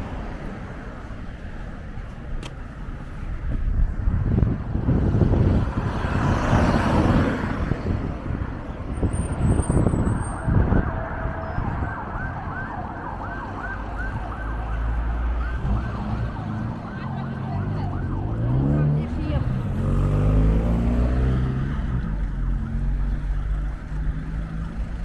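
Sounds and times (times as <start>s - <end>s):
passing street traffic: 0.0s - 25.0s
wind rumbling on microphone: 0.0s - 25.0s
emergency siren yelping: 10.5s - 20.8s, 21.4s - 23.4s.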